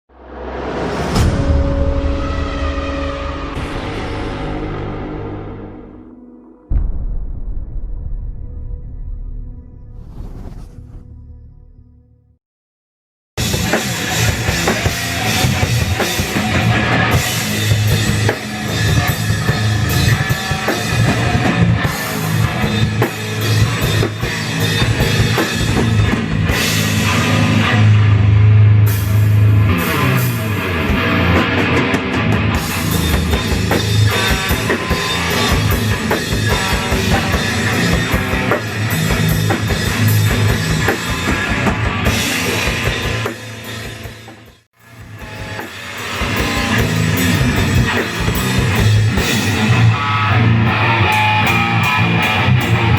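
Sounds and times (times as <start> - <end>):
drum kit: 13.4 - 52.9
guitar playing: 13.5 - 43.2, 44.9 - 52.9.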